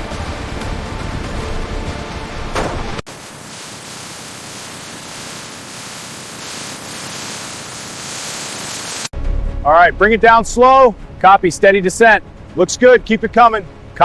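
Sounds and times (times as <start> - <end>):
hiss of falling rain: 2.5 - 9.1
low rumble: 9.2 - 14.0.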